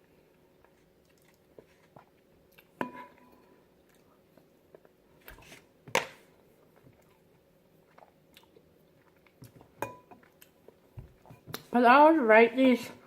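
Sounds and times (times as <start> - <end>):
person chewing: 0.3 - 2.8, 3.5 - 5.0, 6.4 - 11.7.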